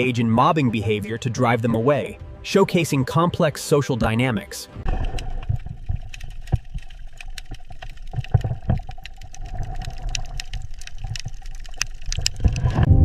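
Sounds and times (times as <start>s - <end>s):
underwater rumble of moving water: 4.8s - 13.0s
sharp clicks: 4.9s - 12.7s.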